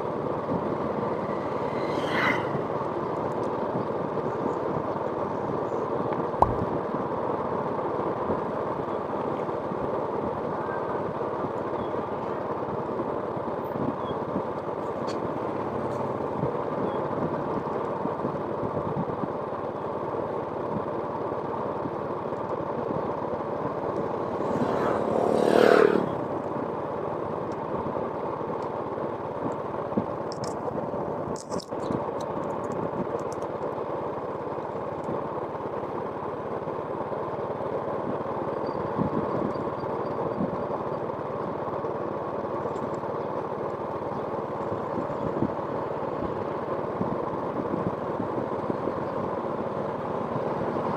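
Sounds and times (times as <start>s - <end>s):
vehicle passing close by: 0.6s - 3.3s, 24.1s - 26.4s
steady motor noise: 20.0s - 50.9s.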